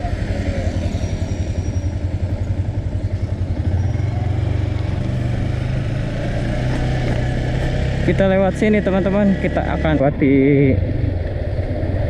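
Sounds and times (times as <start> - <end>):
vehicle engine running: 2.1 - 10.0.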